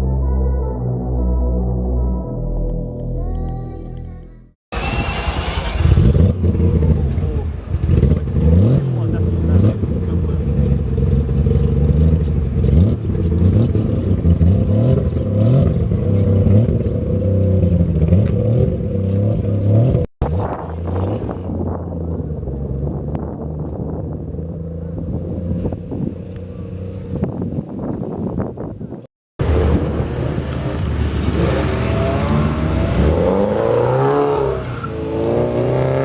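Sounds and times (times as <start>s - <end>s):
car engines idling and revving: 4.8s - 36.0s.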